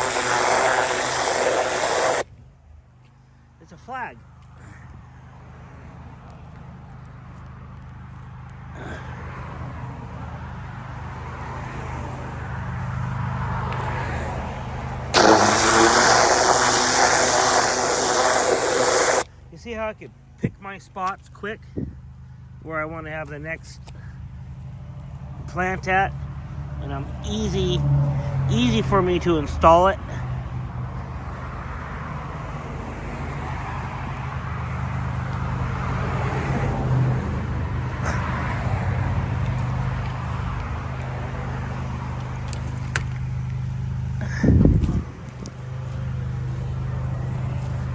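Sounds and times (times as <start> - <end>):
pressure washer humming: 0.0 - 2.3, 15.1 - 19.3
water jet hissing into soil: 0.0 - 2.3, 15.1 - 19.3.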